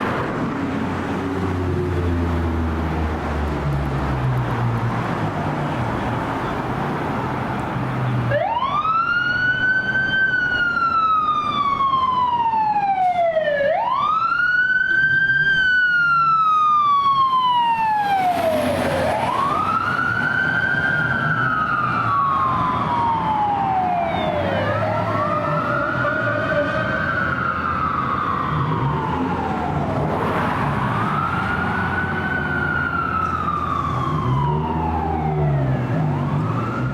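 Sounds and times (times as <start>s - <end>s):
fire engine siren wailing: 0.3s - 36.9s
distant siren wail: 1.0s - 36.9s
vehicle engine rumble: 16.9s - 36.9s.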